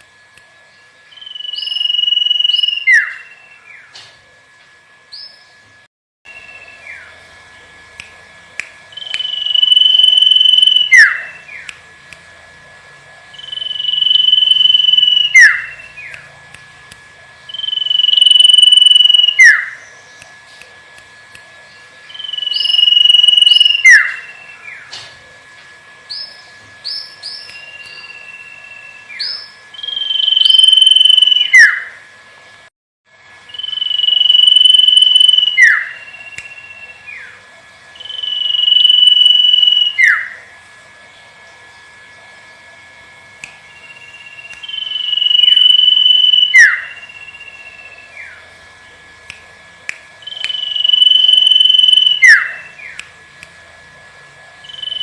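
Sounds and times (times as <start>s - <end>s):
faint steady hum: 0.0s - 55.0s
bird whistling song: 1.1s - 3.9s, 6.3s - 7.2s, 8.9s - 11.7s, 13.3s - 16.2s, 17.5s - 20.2s, 22.1s - 24.9s, 26.1s - 31.9s, 33.5s - 37.4s, 38.0s - 40.4s, 43.7s - 48.4s, 50.2s - 53.0s, 54.6s - 55.0s.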